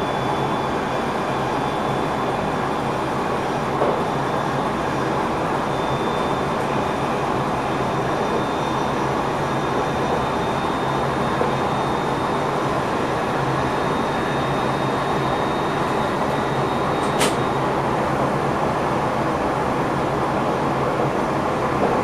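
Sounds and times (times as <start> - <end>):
faint high whine: 0.0 - 17.8
train running noise in cab: 0.0 - 22.0
sharp click: 17.0 - 17.4.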